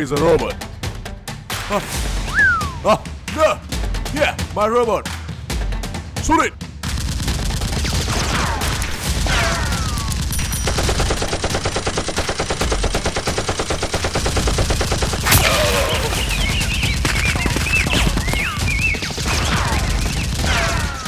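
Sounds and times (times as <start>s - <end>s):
rapid gunfire: 5.6s - 21.0s.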